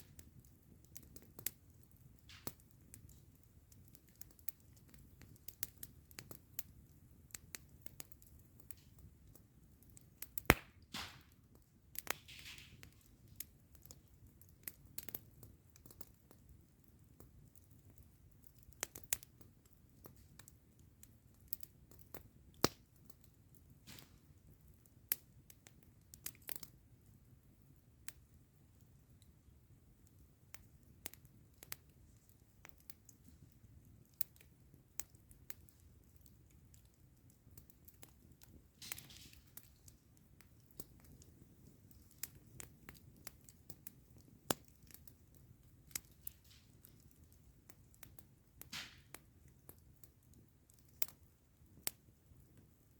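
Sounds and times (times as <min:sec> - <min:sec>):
campfire crackling: 0:00.0 - 0:52.9.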